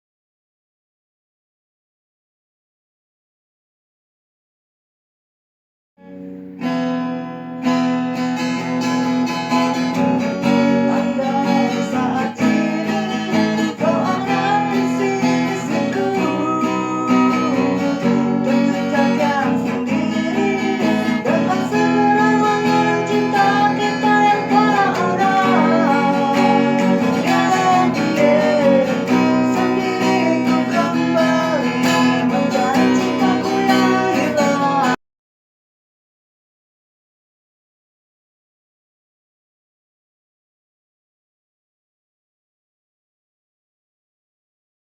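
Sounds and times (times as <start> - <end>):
strummed acoustic guitar: 6.0 - 35.0
person singing: 9.7 - 35.0.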